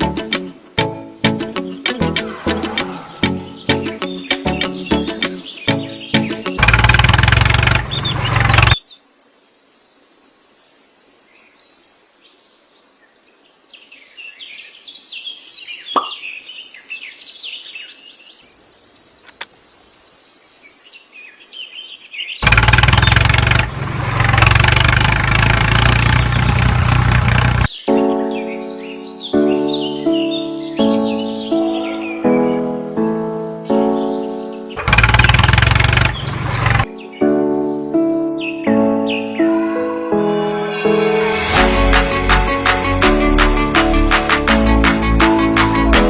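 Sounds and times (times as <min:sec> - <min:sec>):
birds chirping: 0:00.0 - 0:09.1, 0:17.7 - 0:23.4, 0:24.5 - 0:39.5
loud noise: 0:01.9 - 0:04.2, 0:34.8 - 0:36.9.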